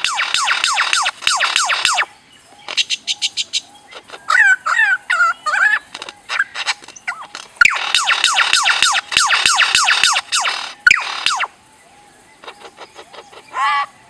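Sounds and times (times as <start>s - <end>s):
lyrebird laser-like sweeps: 0.0s - 2.1s, 7.6s - 11.6s
lyrebird warbling whistled calls: 0.0s - 2.1s, 2.7s - 11.6s
lyrebird sharp clicks: 0.0s - 3.0s, 5.8s - 11.5s.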